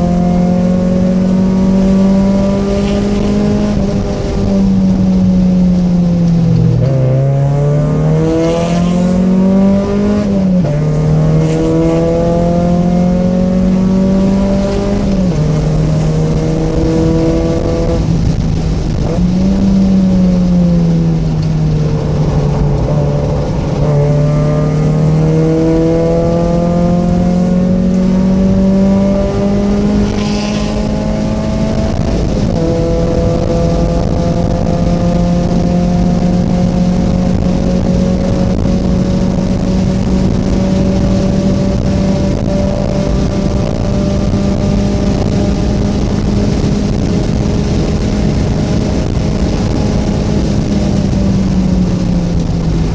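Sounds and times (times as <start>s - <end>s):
car engine accelerating through gears: 0.0s - 52.9s.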